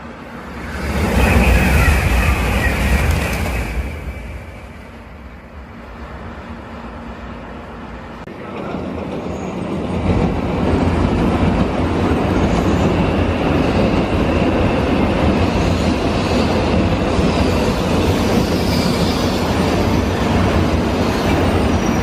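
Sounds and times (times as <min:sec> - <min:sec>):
train rushing past: 0:00.0 - 0:22.0.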